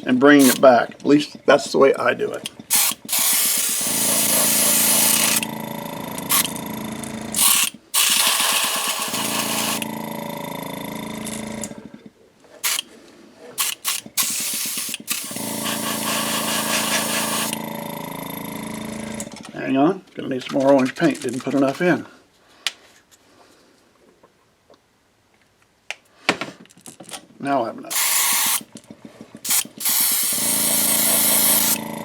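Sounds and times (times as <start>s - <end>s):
airbrush air hissing: 0.0s - 0.7s, 2.4s - 11.6s, 12.6s - 12.9s, 13.6s - 19.2s, 27.9s - 28.6s, 29.5s - 31.8s
compressor humming: 0.0s - 12.9s, 13.6s - 19.6s, 27.8s - 32.0s
sharp clicks: 13.6s - 15.4s.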